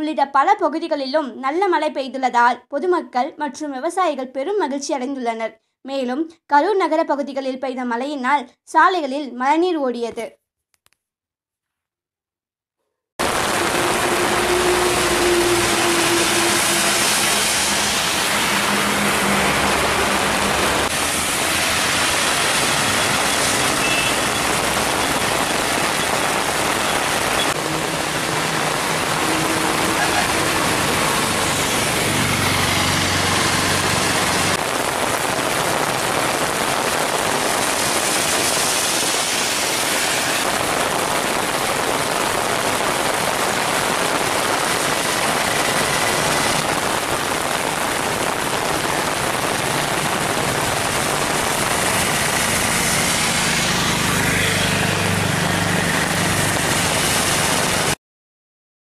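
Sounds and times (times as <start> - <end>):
heavy rain pouring: 13.2 - 58.0
water hissing on road: 13.2 - 58.0.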